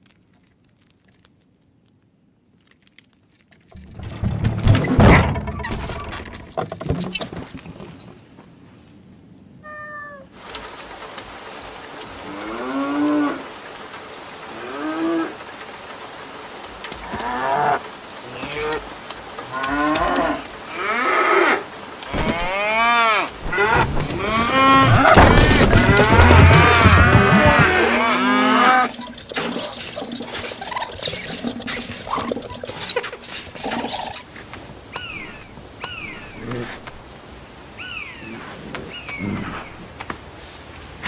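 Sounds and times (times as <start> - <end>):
cattle mooing: 19.5 - 30.6.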